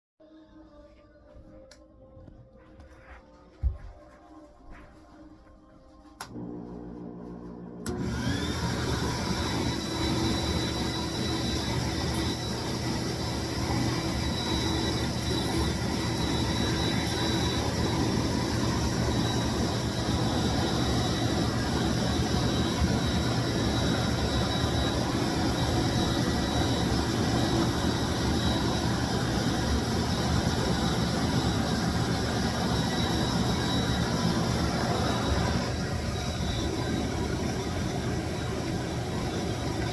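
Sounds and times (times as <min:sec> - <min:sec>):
cleaning machine motor with whine: 0:06.0 - 0:39.9.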